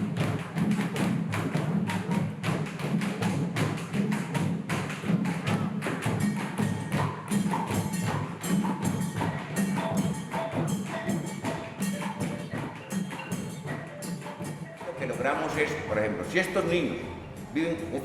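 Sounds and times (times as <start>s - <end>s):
fast drum strikes: 0.0s - 18.0s
deep drum pulse: 15.5s - 18.0s.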